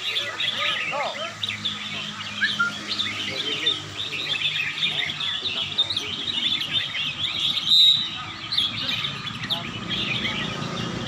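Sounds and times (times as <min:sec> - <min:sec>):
birds chirping and singing: 0:00.0 - 0:11.0.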